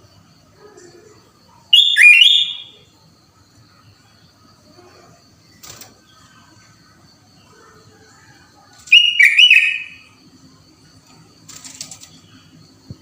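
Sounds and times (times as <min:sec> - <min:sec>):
bird whistled call: 0:01.7 - 0:02.8, 0:08.9 - 0:10.1.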